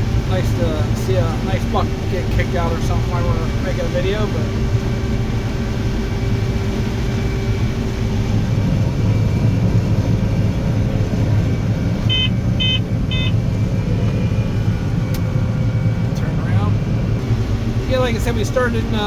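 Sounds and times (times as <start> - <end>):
combine harvester drone: 0.0 - 19.0
short electronic beeps: 12.1 - 13.4.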